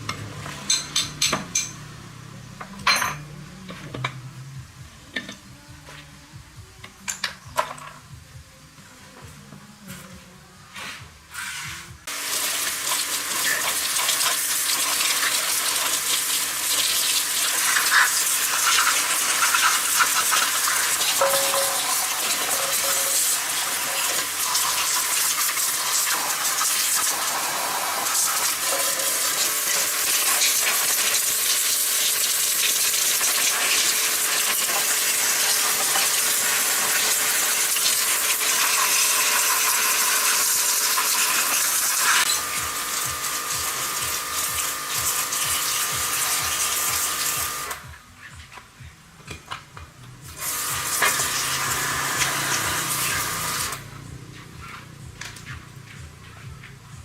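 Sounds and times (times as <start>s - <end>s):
spraying hiss: 10.7s - 47.7s.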